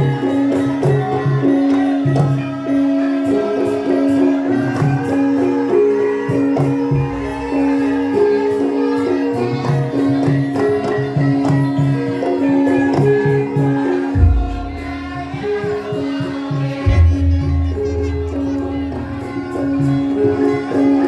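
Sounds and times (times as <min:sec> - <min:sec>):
jingling percussion: 0:00.0 - 0:21.0
repeating drum pattern: 0:14.1 - 0:20.5.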